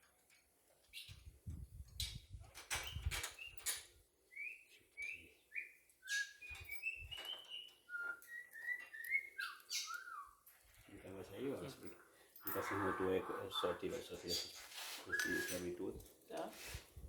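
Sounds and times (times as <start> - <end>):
short whistled notes: 15.0 - 15.8.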